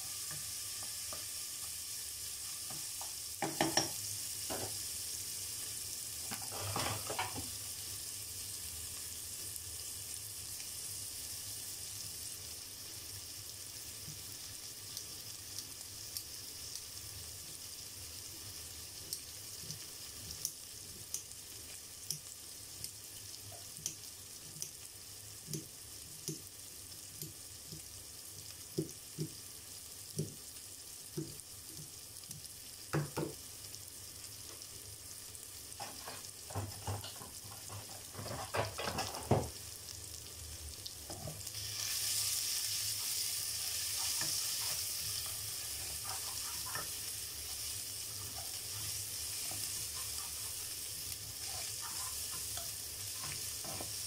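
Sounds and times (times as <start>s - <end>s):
vegetables sizzling in hot oil: 0.0s - 54.0s.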